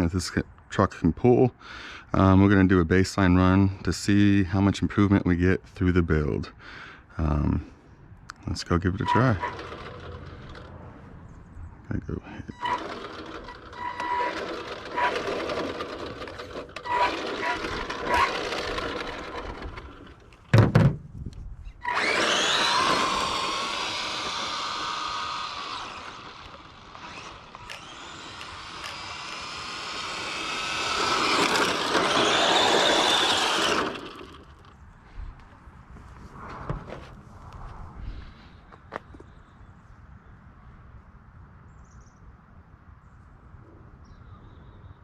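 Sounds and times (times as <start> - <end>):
electric motor whining: 9.0 - 10.8, 12.5 - 20.4, 21.8 - 34.8
sharp thump: 20.5 - 21.1.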